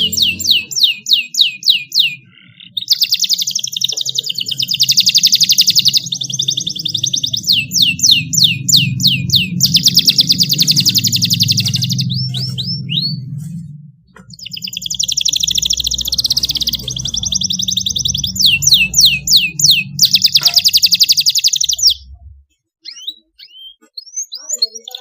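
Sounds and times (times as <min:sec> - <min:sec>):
canary singing: 0:00.0 - 0:25.0
low steady hum: 0:06.0 - 0:22.6.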